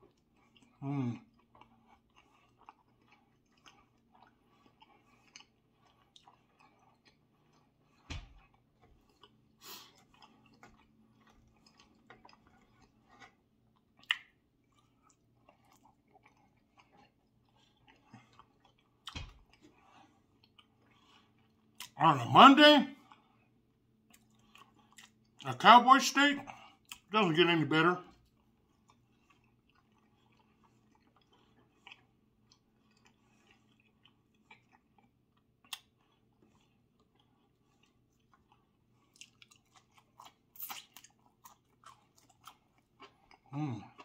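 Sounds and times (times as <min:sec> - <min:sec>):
quiet chewing: 0:00.0 - 0:22.3, 0:22.9 - 0:27.4, 0:28.0 - 0:44.0.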